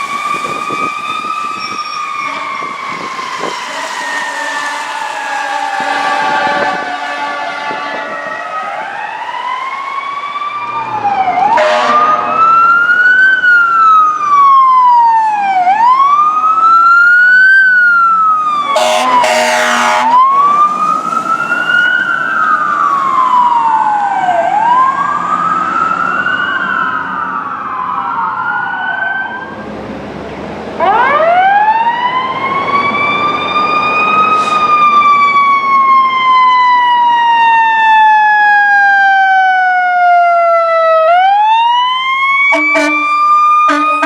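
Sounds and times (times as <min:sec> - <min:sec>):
electronic siren wail: 0:00.0 - 0:29.6, 0:30.8 - 0:44.0
growling mechanical siren: 0:00.0 - 0:29.7, 0:30.8 - 0:44.0
fire truck air horn: 0:00.4 - 0:08.8, 0:11.5 - 0:12.6, 0:18.6 - 0:22.1, 0:34.3 - 0:34.9, 0:42.3 - 0:44.0.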